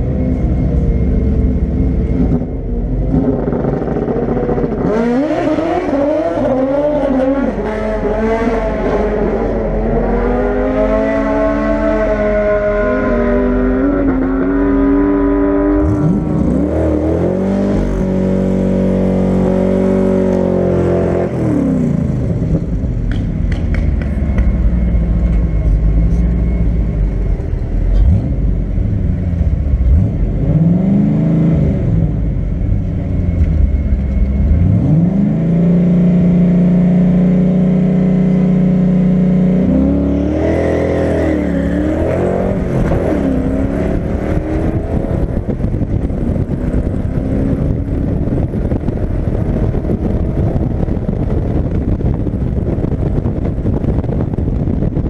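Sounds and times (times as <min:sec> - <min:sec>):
engine idling with blips: 0:00.0 - 0:04.9, 0:21.4 - 0:30.7, 0:31.5 - 0:38.9
car engine revving: 0:00.0 - 0:55.0.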